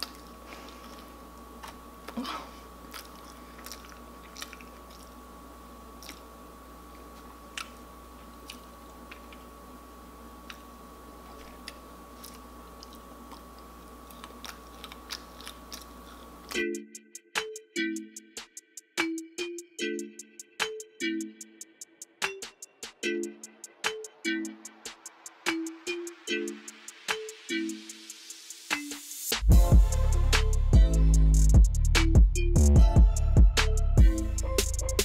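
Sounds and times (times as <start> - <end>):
chewing crab legs: 0.0 - 9.8, 10.4 - 16.6
faint electrical hum: 0.0 - 18.6
music: 16.5 - 35.0.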